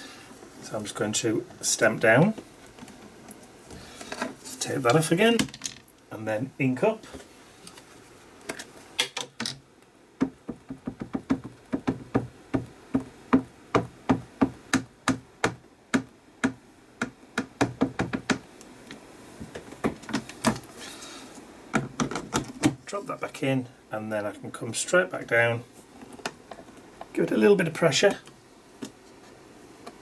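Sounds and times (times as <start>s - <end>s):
ink pad tapping rubber stamp: 10.2s - 18.4s.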